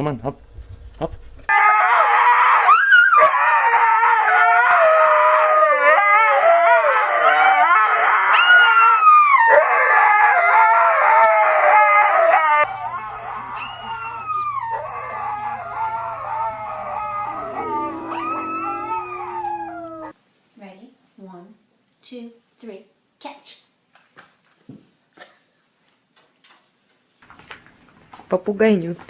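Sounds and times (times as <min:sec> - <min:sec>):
steady low hum: 0:00.0 - 0:01.5, 0:12.6 - 0:20.1
dog howling: 0:01.5 - 0:20.1.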